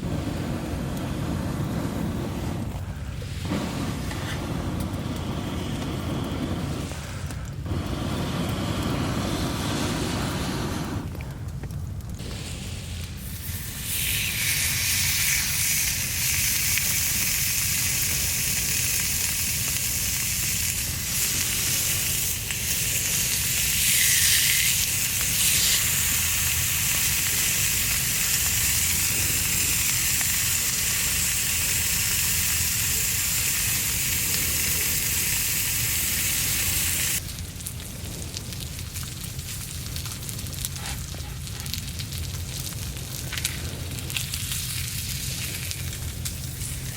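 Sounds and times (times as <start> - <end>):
campfire burning: 0.0 - 46.9
food sizzling on hot plate: 12.4 - 37.2, 40.7 - 46.9.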